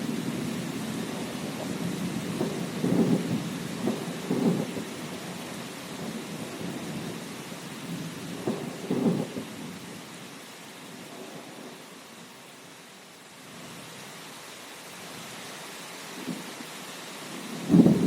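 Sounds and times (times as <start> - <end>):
rolling thunder: 0.0 - 5.4, 7.8 - 9.8, 17.4 - 18.0
steady rain: 0.0 - 18.0.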